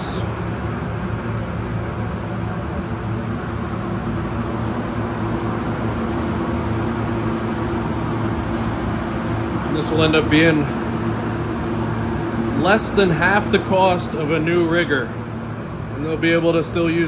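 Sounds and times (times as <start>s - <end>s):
ventilation fan humming: 0.0s - 17.0s.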